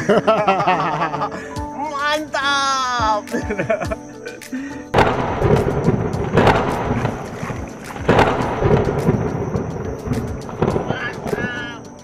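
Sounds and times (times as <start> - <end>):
rumbling wind: 4.9 - 12.0
rain: 5.0 - 12.0.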